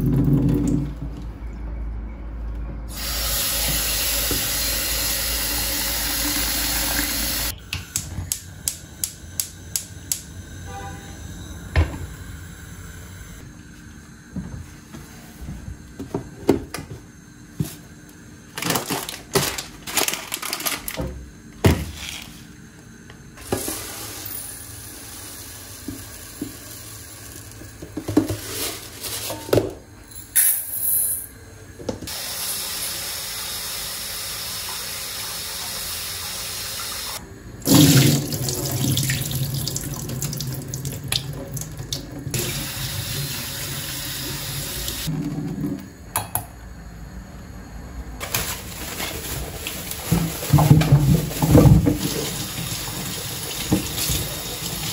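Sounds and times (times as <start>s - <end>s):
tap water running into sink: 37.7s - 45.1s, 49.6s - 54.9s.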